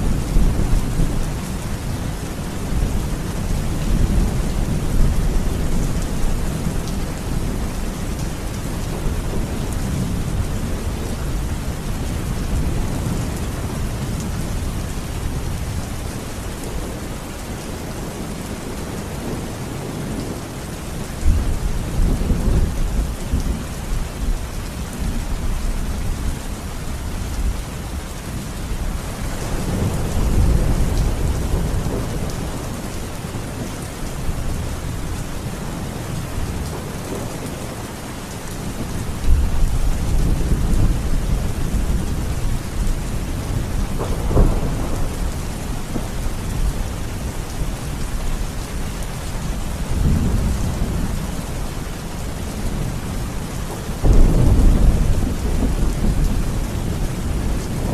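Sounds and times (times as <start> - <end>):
heavy rain: 0.0 - 57.9
rolling thunder: 38.6 - 57.9.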